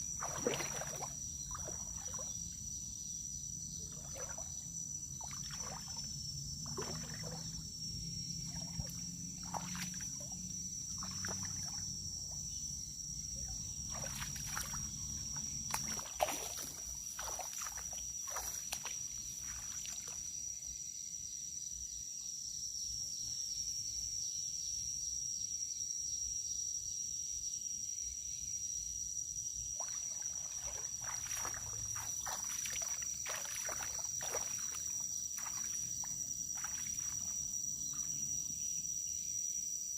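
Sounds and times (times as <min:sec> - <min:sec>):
water splashing and sloshing: 0:00.0 - 0:03.0, 0:03.6 - 0:12.6, 0:13.2 - 0:20.4, 0:29.7 - 0:38.7
high-pitched insect drone: 0:28.0 - 0:39.9.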